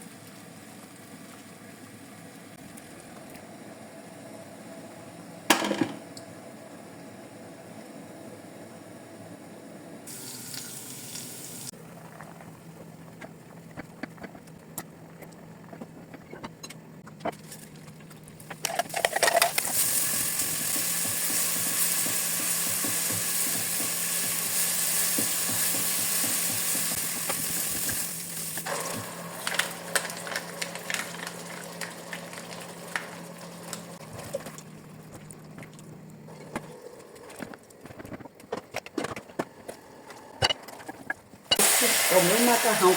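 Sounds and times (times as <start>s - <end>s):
meat sizzling in a pan: 10.1s - 11.7s, 19.6s - 33.9s, 41.6s - 42.9s.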